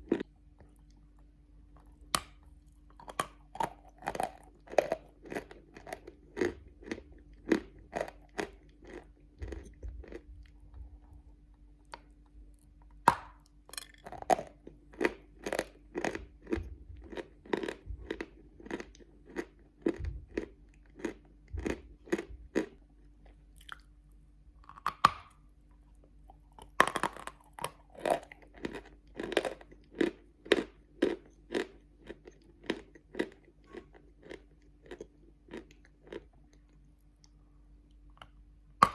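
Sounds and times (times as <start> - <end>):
person chewing crunchy chalk: 1.8 - 11.0, 13.2 - 23.9, 26.2 - 37.4.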